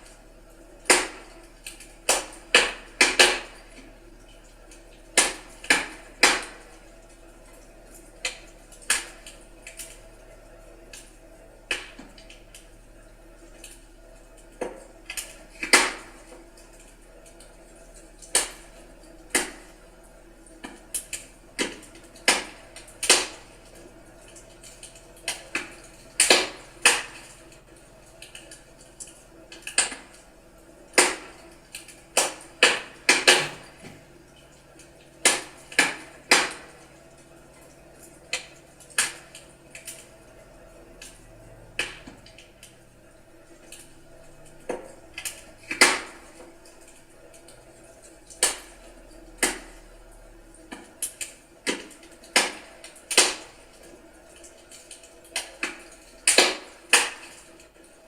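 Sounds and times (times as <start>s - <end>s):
wood fire crackling and popping: 13.3s - 34.6s.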